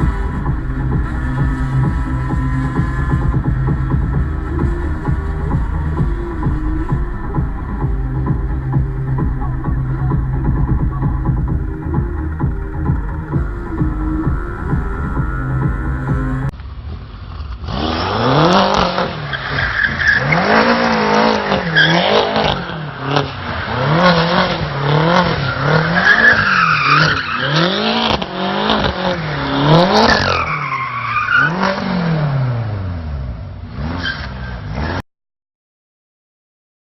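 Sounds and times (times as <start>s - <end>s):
tyre squeal: 0.0s - 7.1s, 25.2s - 31.9s, 33.9s - 35.0s
car engine revving: 0.0s - 35.0s.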